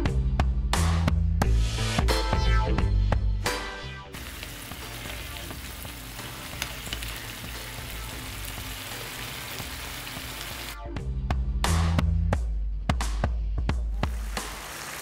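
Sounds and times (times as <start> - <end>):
food frying in hot oil: 4.2 - 10.8, 14.0 - 15.0.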